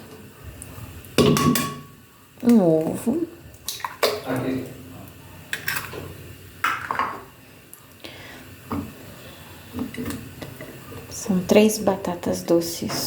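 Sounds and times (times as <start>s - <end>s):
dishes and utensils clinking: 1.2s - 1.9s.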